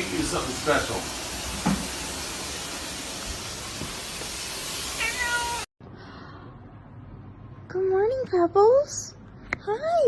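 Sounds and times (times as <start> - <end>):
loud steady hiss: 0.0 - 5.7
cat meowing: 5.0 - 5.7.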